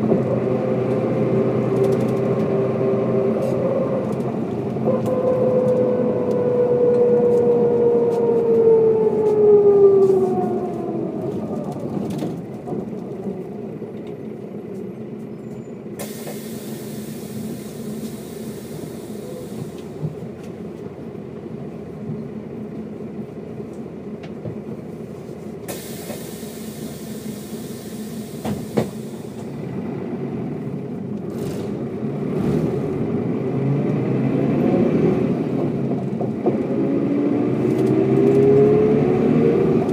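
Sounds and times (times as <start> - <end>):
engine running at low revs: 0.0 - 15.4, 16.0 - 39.9
bus drivetrain whining: 0.0 - 39.9
air hissing: 16.0 - 20.0, 25.7 - 29.6.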